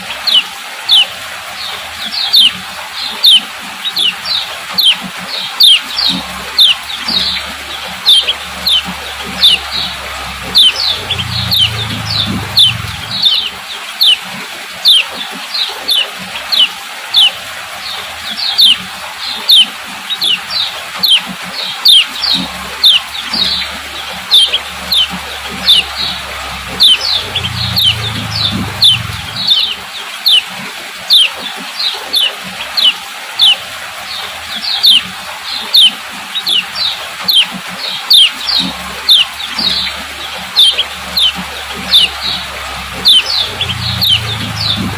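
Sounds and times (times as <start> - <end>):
bird chirping: 0.2 - 1.1, 2.1 - 14.2, 14.8 - 30.5, 31.1 - 33.6, 34.6 - 44.9
faint low hum: 5.9 - 13.7, 22.2 - 29.8, 38.6 - 44.9.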